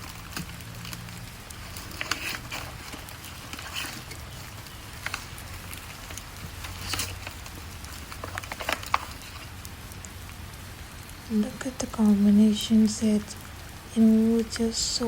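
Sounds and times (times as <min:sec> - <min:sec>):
packaging rustling: 0:00.0 - 0:10.2.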